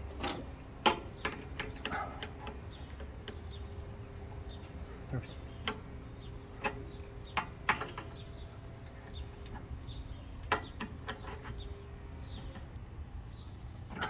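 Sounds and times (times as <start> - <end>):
steady low hum: 0.0 - 14.0
clicks of metal fittings: 6.6 - 8.1.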